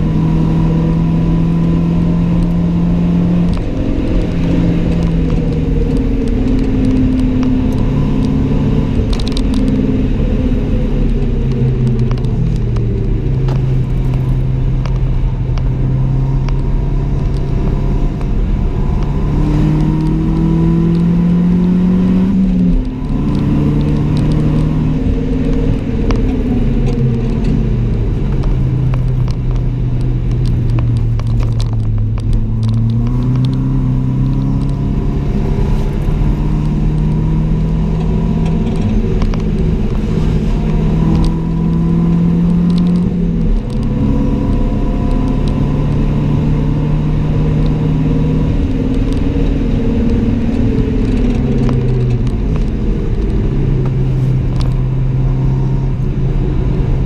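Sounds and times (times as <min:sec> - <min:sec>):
car engine accelerating: 0:00.0 - 0:57.0
road and tyre noise: 0:00.0 - 0:57.0.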